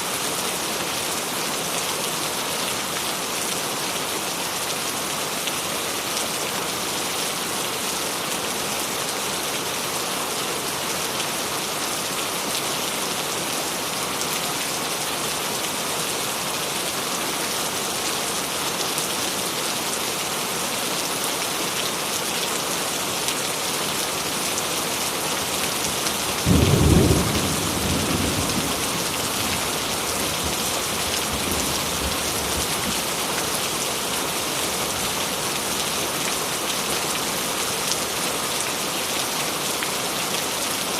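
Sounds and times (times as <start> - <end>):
steady rain: 0.0 - 40.9
thunder rumbling: 26.4 - 32.7.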